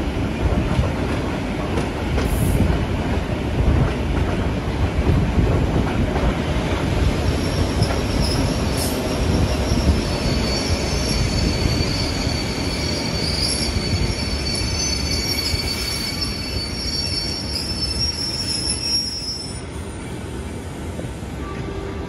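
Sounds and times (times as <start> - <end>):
train wheels squealing: 7.0 - 20.5.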